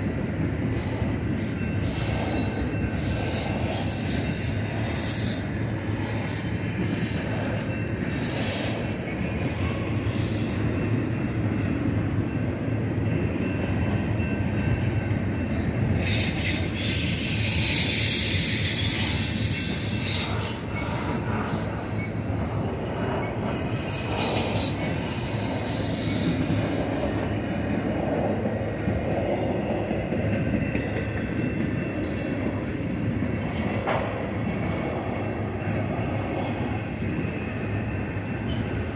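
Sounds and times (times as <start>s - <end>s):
train wheels rumbling on rails: 0.0s - 38.9s
high hissing wheel squeal: 0.7s - 10.6s, 15.5s - 26.6s.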